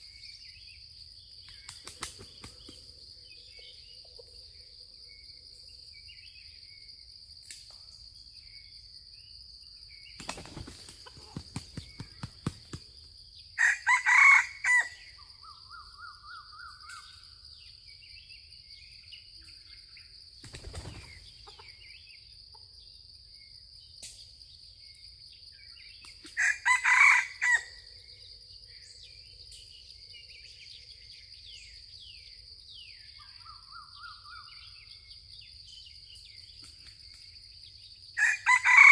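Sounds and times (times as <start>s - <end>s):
high insect drone: 0.0s - 38.9s
rooster wings flapping: 10.2s - 12.9s, 20.4s - 21.2s
rooster crowing: 13.6s - 15.1s, 26.4s - 27.8s, 38.2s - 38.9s.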